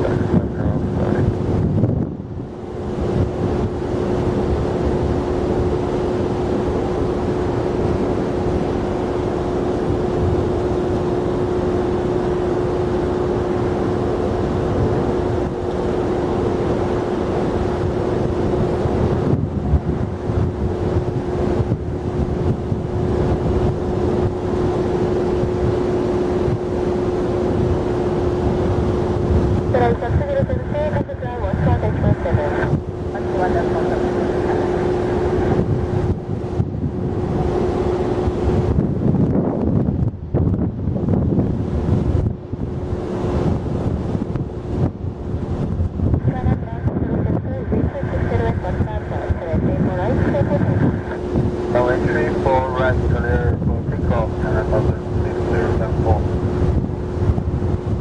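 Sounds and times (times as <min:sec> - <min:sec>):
droning tone: 0:00.0 - 0:39.0, 0:41.6 - 0:58.0
jet engine rumble: 0:00.0 - 0:58.0
wind on microphone: 0:00.0 - 0:58.0.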